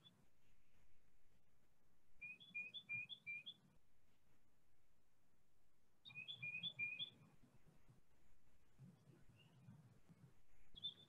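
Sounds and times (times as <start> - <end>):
songbird whistling: 2.2 - 3.6, 6.0 - 7.2, 10.7 - 11.0.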